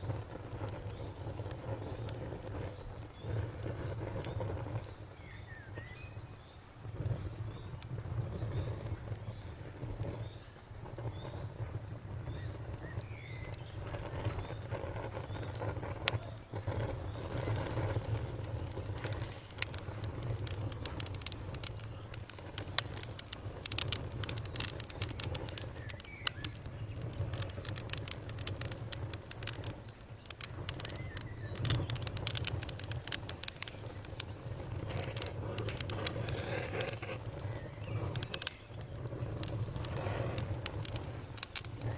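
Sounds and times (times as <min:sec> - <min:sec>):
cricket chirping: 0:00.0 - 0:41.9
wood fire crackling and popping: 0:00.0 - 0:41.9
birds chirping: 0:12.3 - 0:28.0, 0:29.5 - 0:41.9.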